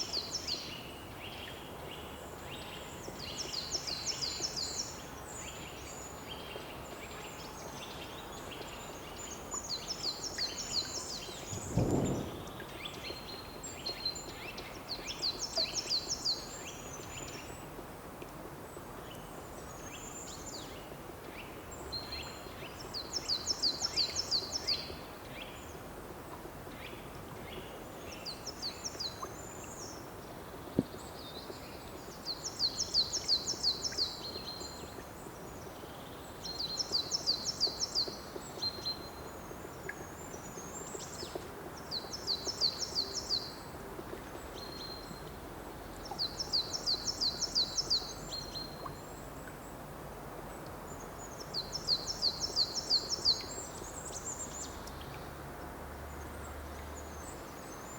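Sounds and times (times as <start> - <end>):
outdoor background: 0.0 - 57.9
low thump: 11.5 - 12.8
songbird singing: 45.9 - 49.3.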